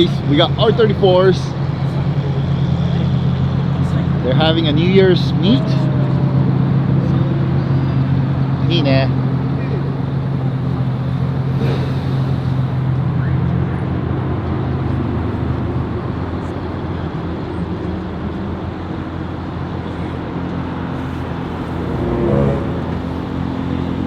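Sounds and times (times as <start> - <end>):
car engines idling: 0.0 - 24.0
traffic noise: 0.0 - 24.0.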